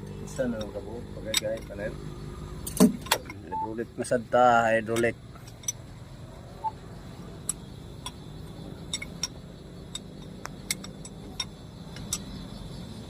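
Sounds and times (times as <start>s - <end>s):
sharp irregular ticks: 4.8s - 13.0s.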